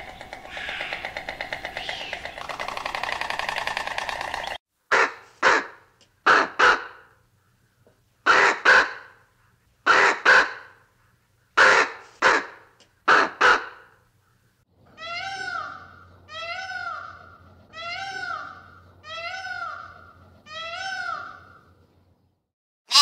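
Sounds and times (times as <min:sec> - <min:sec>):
bird cawing: 0:00.0 - 0:07.6.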